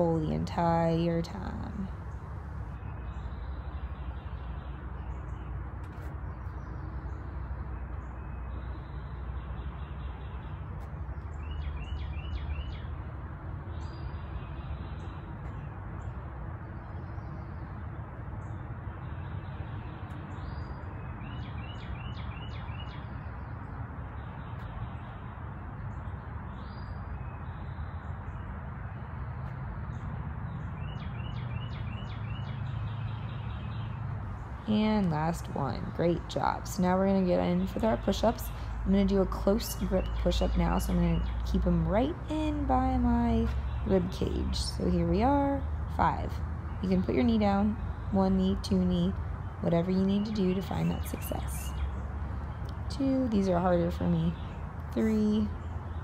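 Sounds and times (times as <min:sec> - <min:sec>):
songbirds chirping and singing: 0:29.8 - 0:56.0.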